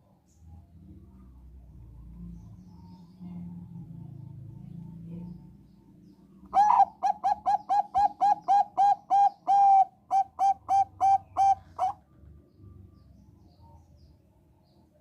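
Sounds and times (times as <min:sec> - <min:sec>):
zebra dove cooing: 0:06.5 - 0:12.0.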